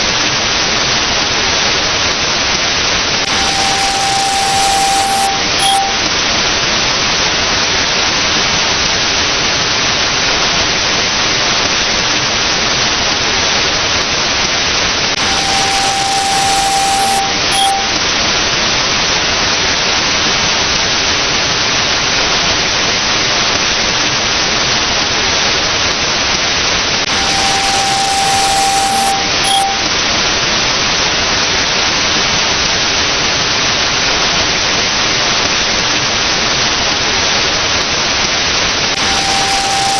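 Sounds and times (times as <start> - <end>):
static hiss: 3.3 - 6.1, 15.2 - 18.0, 27.1 - 29.8, 39.0 - 39.9
long and short beep: 3.3 - 6.2, 15.2 - 18.1, 27.1 - 30.0, 39.0 - 39.9.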